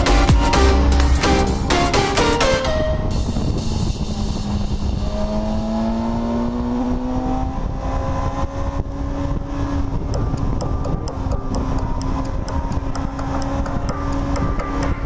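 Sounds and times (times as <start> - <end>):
motorcycle engine accelerating: 3.0 - 15.0
wind rumble on microphone: 3.0 - 15.0.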